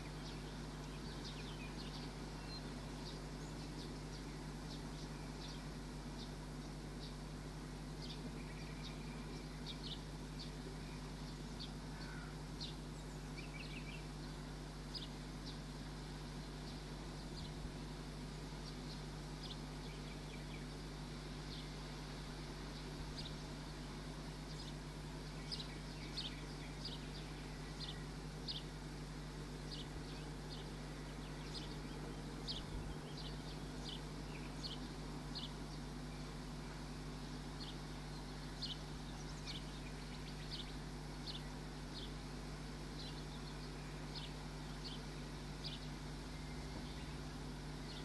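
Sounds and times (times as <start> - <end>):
small bird chirping: 0.0 - 7.2, 22.6 - 48.0
low hum: 0.0 - 48.0.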